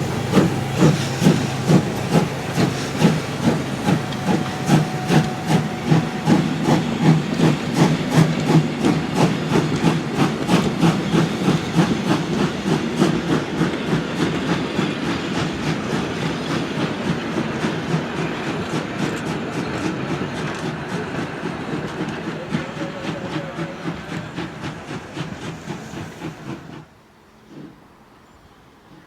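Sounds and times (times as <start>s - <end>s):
hiss of steam: 0.0s - 28.2s
steam locomotive chuffing: 0.0s - 29.0s
train rattling on rails: 0.0s - 29.0s.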